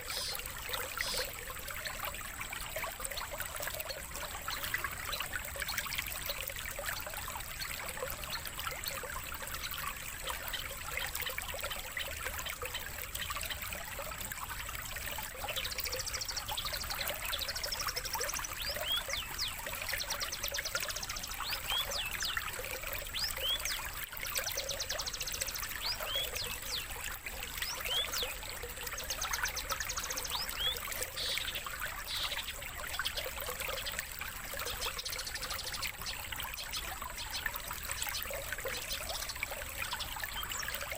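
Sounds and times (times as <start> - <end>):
songbird chirping and trilling: 0.0 - 1.3, 15.4 - 22.4, 23.0 - 23.8, 24.5 - 27.0, 27.6 - 28.4, 29.0 - 33.9
running water trickling: 0.0 - 40.9.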